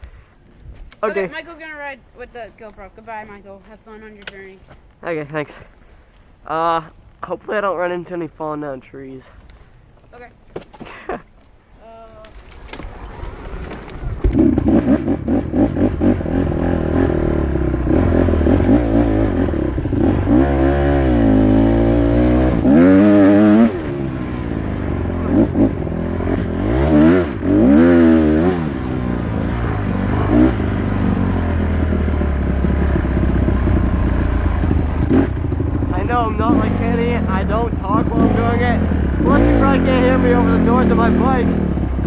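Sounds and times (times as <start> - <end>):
dirt bike engine revving: 12.8 - 42.0.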